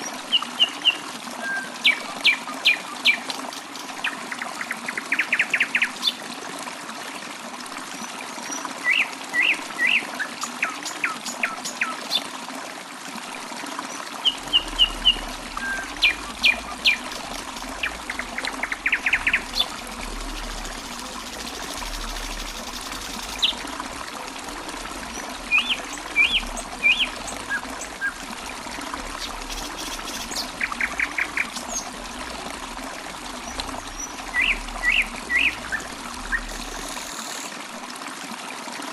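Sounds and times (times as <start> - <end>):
trickle of running water: 0.0 - 38.9
small birds chirping: 14.3 - 23.7.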